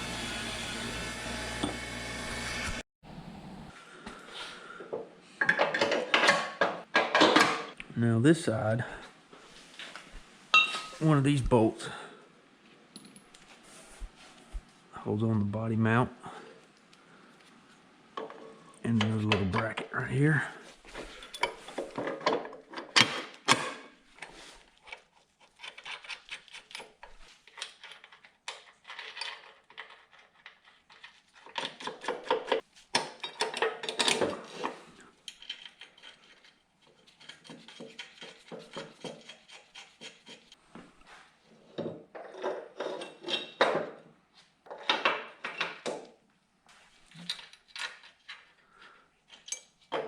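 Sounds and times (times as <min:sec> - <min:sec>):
metal parts clinking: 0:35.2 - 0:36.5.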